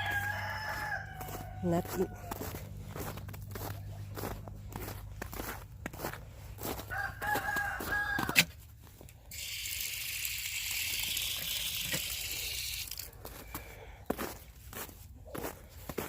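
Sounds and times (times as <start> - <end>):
rooster crowing: 0.0 - 4.9, 6.6 - 8.5.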